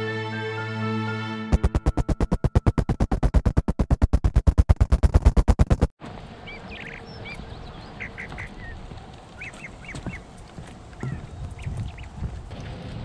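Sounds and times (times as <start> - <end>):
low rumble of wind: 6.0 - 13.0
birds calling: 6.4 - 12.5.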